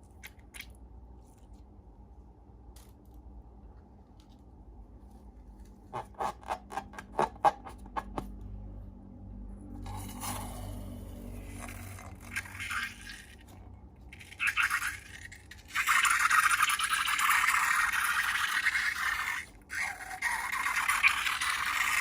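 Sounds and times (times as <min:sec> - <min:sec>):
slime being scraped by hand: 0:05.2 - 0:08.3.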